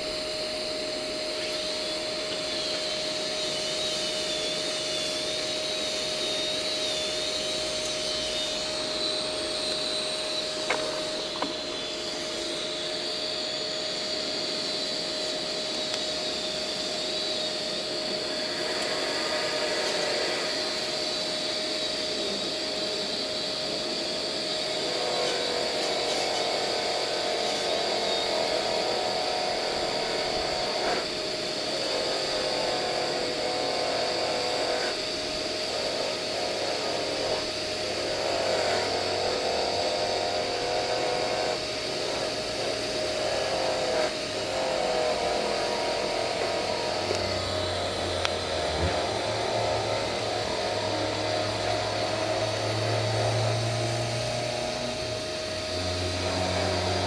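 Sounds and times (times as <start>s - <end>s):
motor whine: 0.0s - 57.0s.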